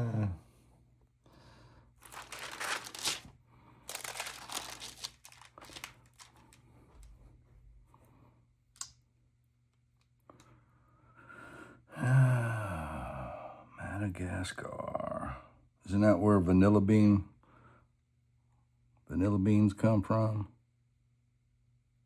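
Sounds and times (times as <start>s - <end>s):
paper and plastic rustling: 2.0s - 3.3s, 3.9s - 6.6s.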